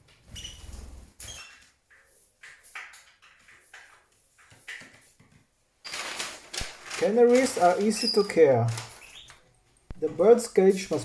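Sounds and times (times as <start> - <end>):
loud rustling: 5.9 - 9.4
canaries chirping: 7.1 - 10.2.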